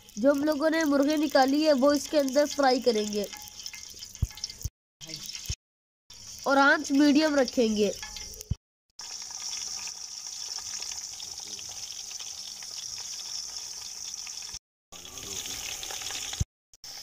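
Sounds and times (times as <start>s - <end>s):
chicken frying in hot oil: 0.0s - 17.0s.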